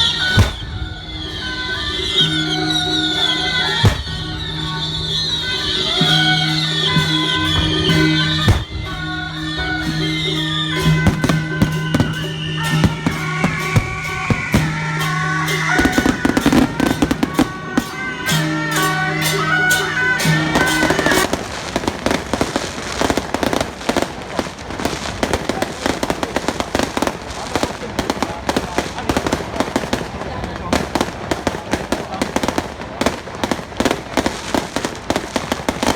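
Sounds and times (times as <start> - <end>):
music with long held notes: 0.0 - 28.8
firecrackers banging: 0.0 - 35.9.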